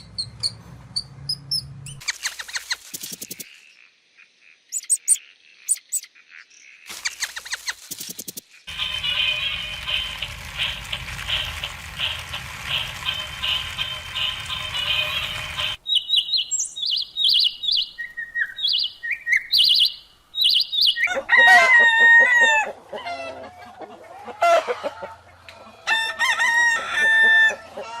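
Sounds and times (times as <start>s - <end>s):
rooster crowing: 21.0s - 23.5s, 25.8s - 28.0s
chicken clucking: 21.1s - 26.1s, 27.0s - 28.0s.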